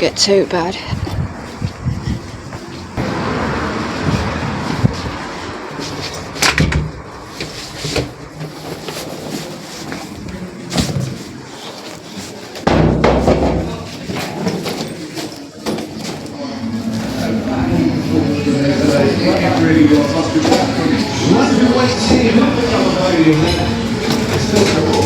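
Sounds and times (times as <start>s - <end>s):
rustling handling noise: 7.1s - 12.7s
sharp knocks and thuds: 12.6s - 14.0s.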